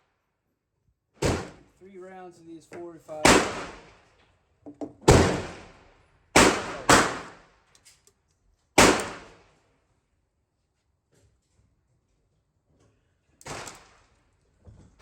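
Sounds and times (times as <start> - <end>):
gunshots: 1.2 - 1.6, 3.2 - 4.0, 5.1 - 5.8, 6.4 - 7.5, 8.8 - 9.4, 13.4 - 14.0.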